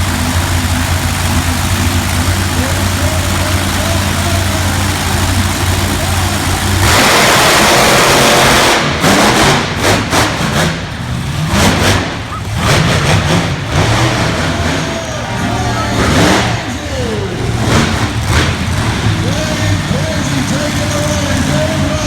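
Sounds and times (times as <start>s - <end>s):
truck engine revving: 0.0s - 22.0s
people shouting: 2.5s - 8.1s, 13.8s - 17.6s.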